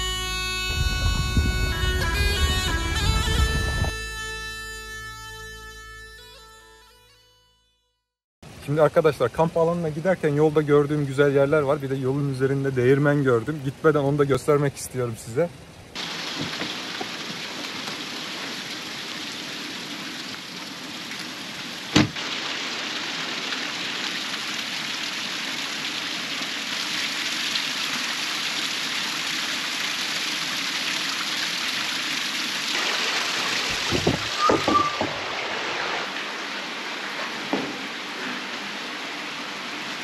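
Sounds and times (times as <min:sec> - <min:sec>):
water rushing: 0:08.4 - 0:40.0
sharp knock: 0:22.0 - 0:22.2, 0:33.7 - 0:35.2.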